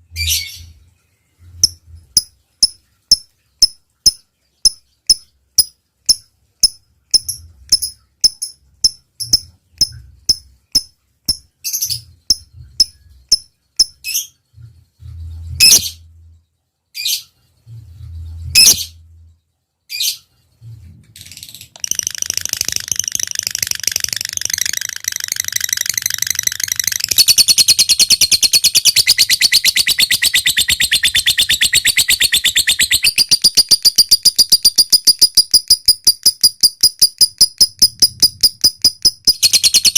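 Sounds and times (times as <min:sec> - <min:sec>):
lovebird ticks: 0:01.6 - 0:14.0, 0:21.8 - 0:39.9
lovebird rapid chatter: 0:21.3 - 0:39.9.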